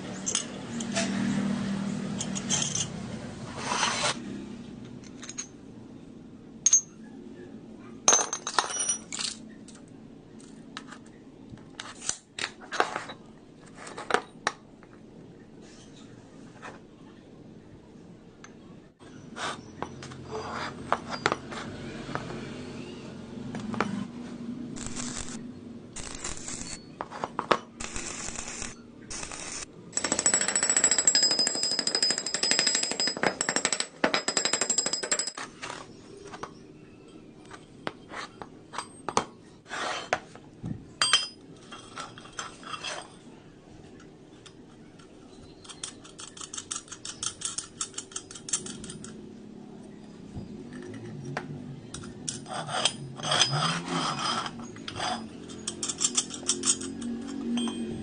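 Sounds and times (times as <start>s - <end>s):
metal parts clinking: 0.1s - 0.9s, 2.2s - 3.0s, 5.0s - 5.6s, 6.7s - 7.0s, 8.1s - 9.8s, 26.0s - 35.5s, 45.6s - 49.2s, 51.9s - 58.0s.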